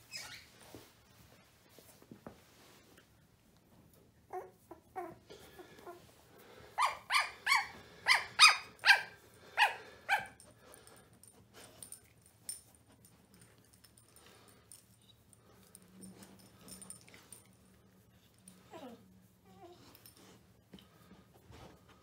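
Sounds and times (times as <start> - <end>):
puppies yelping: 6.8 - 10.3.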